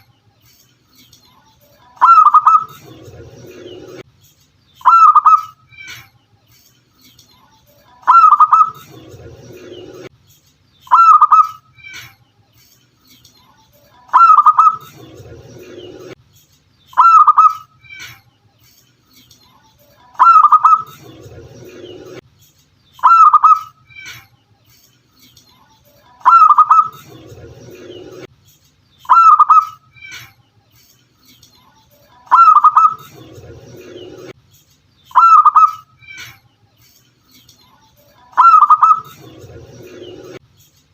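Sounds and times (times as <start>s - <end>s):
dove call: 2.0s - 2.9s, 4.8s - 5.6s, 8.0s - 8.9s, 10.8s - 11.6s, 14.1s - 15.0s, 16.9s - 17.7s, 20.2s - 21.0s, 23.0s - 23.8s, 26.2s - 27.1s, 29.0s - 29.8s, 32.3s - 33.1s, 35.1s - 35.9s, 38.3s - 39.3s.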